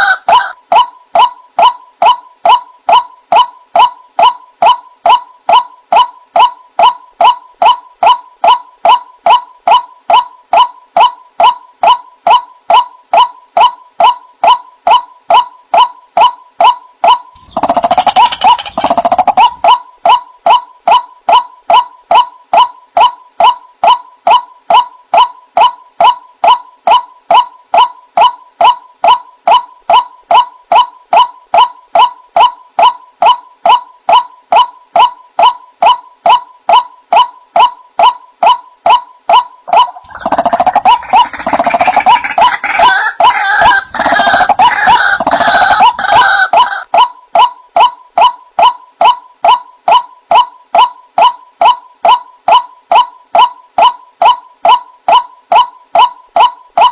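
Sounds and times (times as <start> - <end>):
waterhen calling: 17.4 - 19.8, 39.7 - 46.9.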